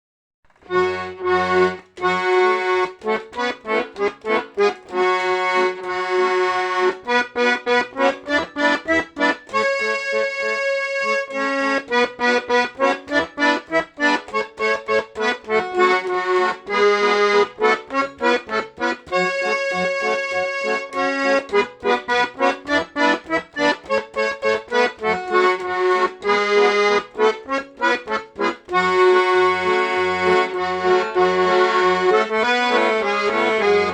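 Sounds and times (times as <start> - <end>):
button accordion playing lively tune: 0.5 - 33.9.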